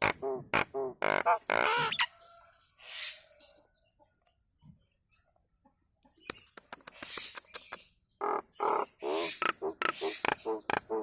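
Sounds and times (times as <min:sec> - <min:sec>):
bird clicks and whistles: 0:06.2 - 0:08.0.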